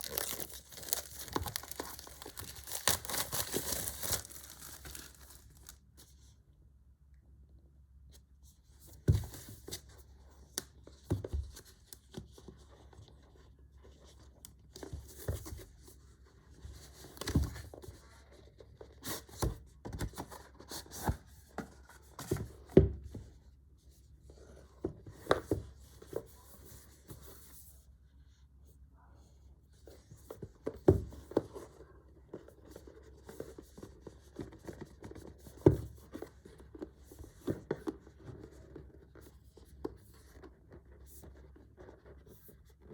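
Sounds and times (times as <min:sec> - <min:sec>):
packaging rustling and scraping: 0:00.0 - 0:05.8.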